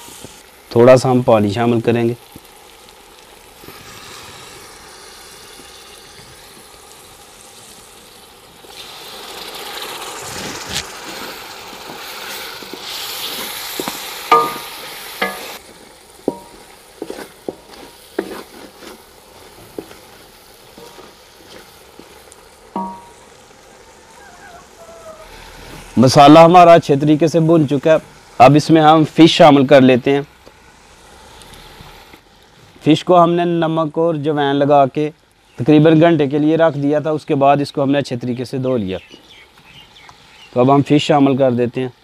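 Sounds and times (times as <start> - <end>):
masala sizzling in a pot: 0.0 - 42.0
wooden spatula scraping a pot: 10.3 - 14.6, 15.2 - 22.2.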